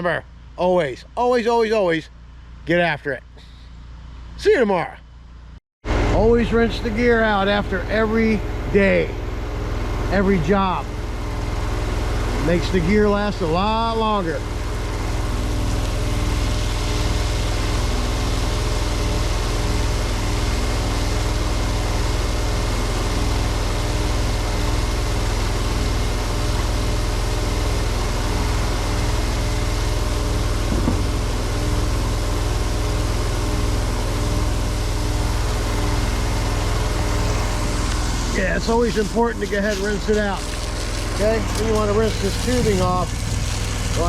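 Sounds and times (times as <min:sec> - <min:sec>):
gas engine running: 0:00.0 - 0:04.4, 0:05.1 - 0:44.0.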